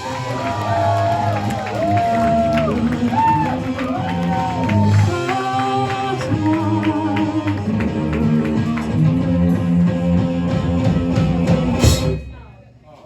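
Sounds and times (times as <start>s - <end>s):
live rock band playing: 2.3s - 12.3s.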